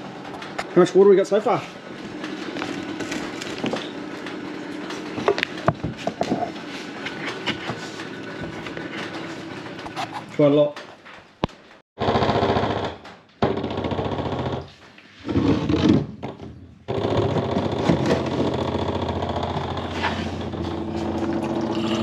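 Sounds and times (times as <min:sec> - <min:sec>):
electric pump rattling: 0:00.0 - 0:10.6, 0:16.9 - 0:22.0.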